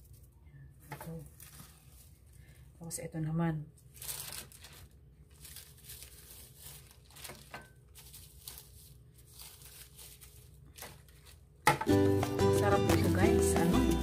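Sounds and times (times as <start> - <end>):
gloved hand rustling seaweed: 1.3 - 2.7, 3.9 - 11.5.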